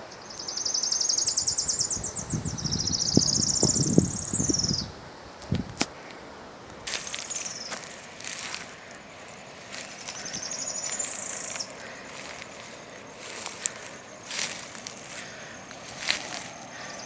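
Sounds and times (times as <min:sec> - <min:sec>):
outdoor background hiss: 0:00.0 - 0:17.0
small bird trilling: 0:09.7 - 0:17.0.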